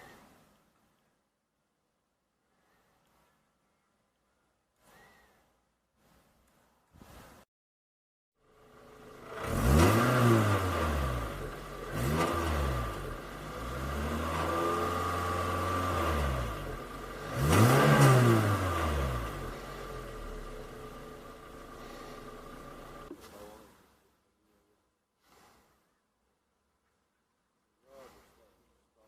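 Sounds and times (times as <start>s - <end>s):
car engine revving: 8.5s - 23.1s.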